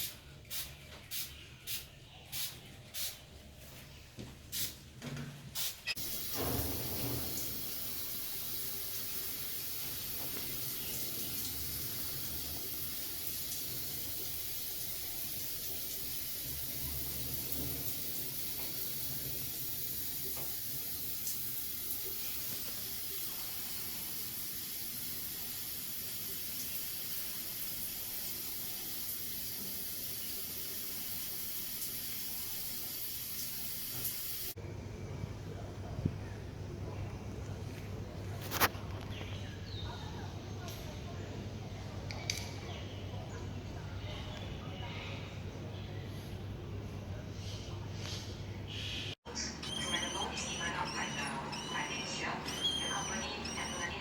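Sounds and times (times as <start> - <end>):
water running from tap: 6.0 - 34.6.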